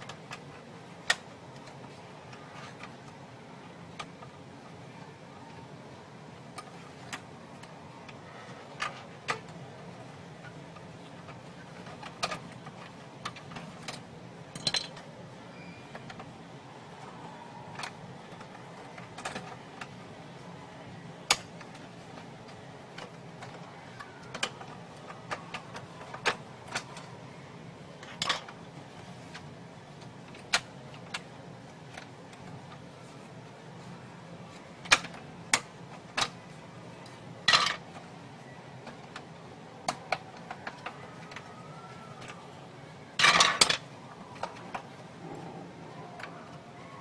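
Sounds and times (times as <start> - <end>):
faint steady hum: 0.0 - 47.0
plastic and metal parts clicking: 22.9 - 27.1.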